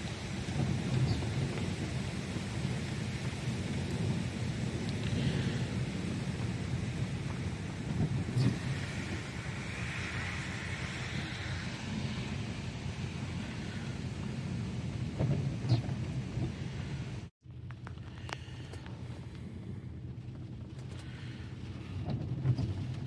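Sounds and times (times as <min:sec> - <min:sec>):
rain beating on car: 0:00.0 - 0:16.9
gusty wind: 0:00.0 - 0:23.0.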